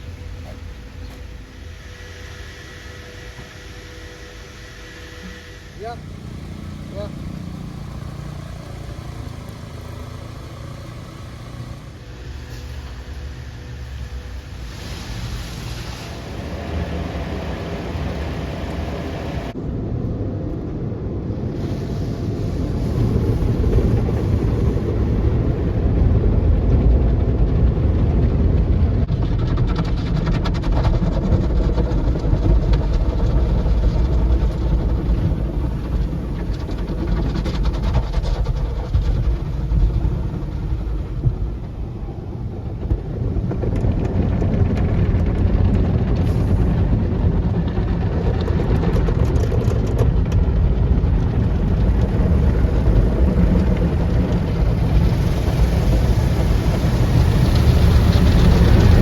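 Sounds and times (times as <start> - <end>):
low mechanical rumble: 0.0 - 59.0
hiss: 0.1 - 19.6, 21.6 - 25.7.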